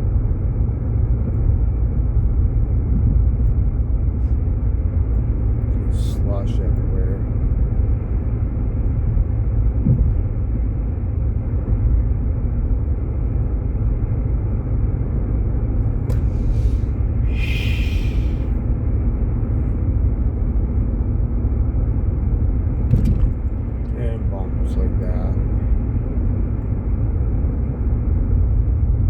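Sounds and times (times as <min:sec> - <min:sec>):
car road and engine rumble: 0:00.0 - 0:29.0
brief hiss: 0:16.1 - 0:18.6.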